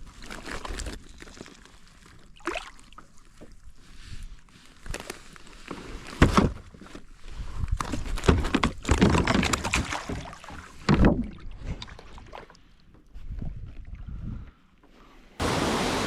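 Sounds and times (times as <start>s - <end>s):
water splashing around kayak: 8.8s - 12.8s, 15.4s - 16.0s.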